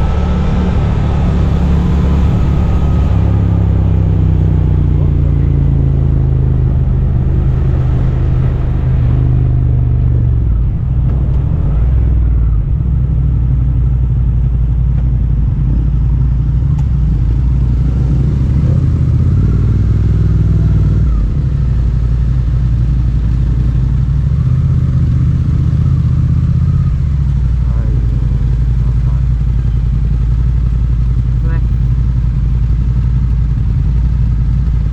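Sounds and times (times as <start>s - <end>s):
motorcycle engine shifting gears: 0.0s - 34.9s.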